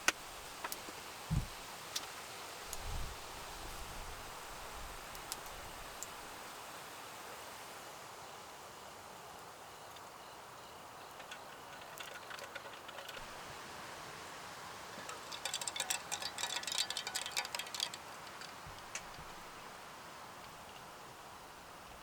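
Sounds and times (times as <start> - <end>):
small hard objects clinking: 11.1 - 13.4, 14.9 - 19.5.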